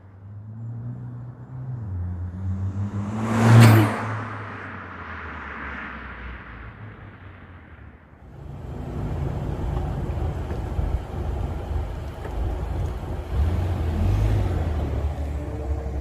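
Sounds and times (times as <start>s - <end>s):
car exhaust drone: 8.2s - 16.0s.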